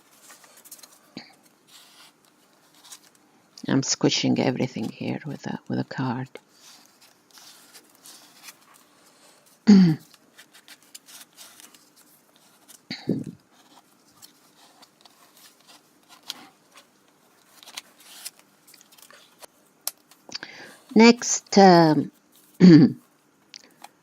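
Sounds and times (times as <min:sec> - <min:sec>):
card scraping paper: 0:00.1 - 0:03.2, 0:06.5 - 0:19.5.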